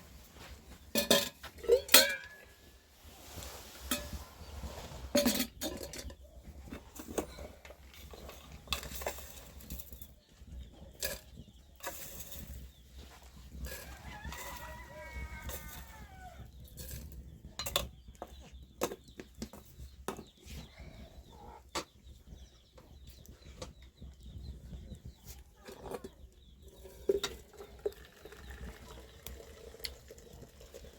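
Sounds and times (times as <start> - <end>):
chickens clucking: 12.4 - 30.4.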